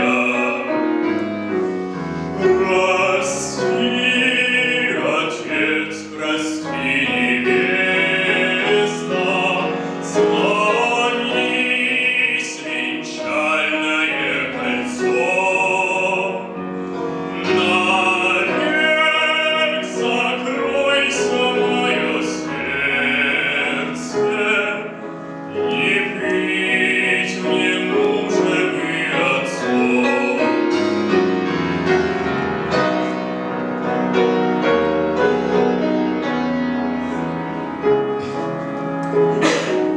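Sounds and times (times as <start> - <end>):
man singing with vibrato: 0.0 - 1.1, 2.3 - 31.5
piano accompaniment: 0.0 - 39.9.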